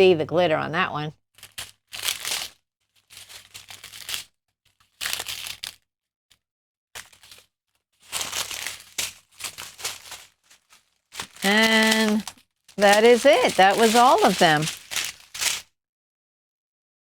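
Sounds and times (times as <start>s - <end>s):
plastic packets crinkling: 1.4s - 5.7s, 7.0s - 15.6s.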